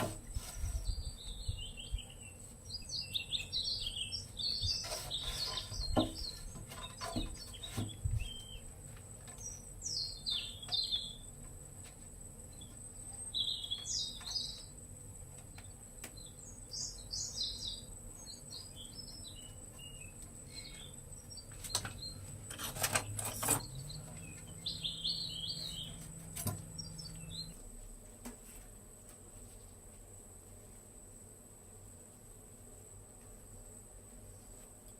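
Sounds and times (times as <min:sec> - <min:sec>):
small birds chirping: 0:00.0 - 0:11.5, 0:12.5 - 0:27.6.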